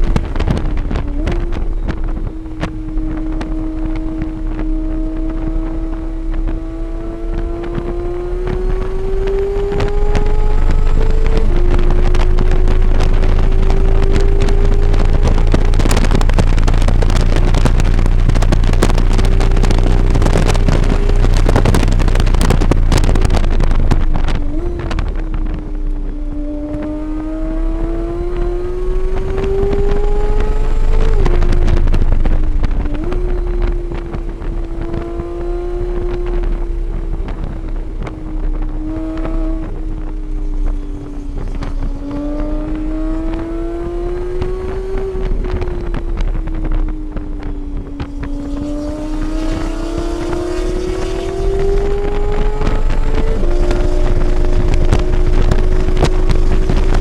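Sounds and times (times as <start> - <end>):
race car engine at high revs: 0.0 - 57.0
wind noise: 0.0 - 57.0.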